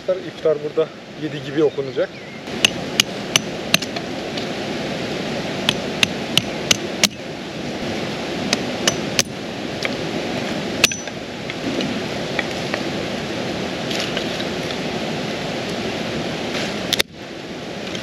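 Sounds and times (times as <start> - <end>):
creek rushing: 0.0 - 18.0.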